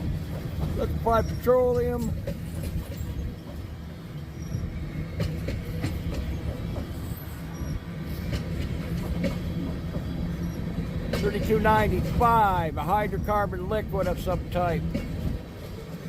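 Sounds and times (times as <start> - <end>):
rumble of train wheels on rail: 0.0 - 16.0
wheels clicking over rail joints: 0.0 - 16.0
faint high wheel squeals: 1.0 - 8.4, 10.0 - 11.5.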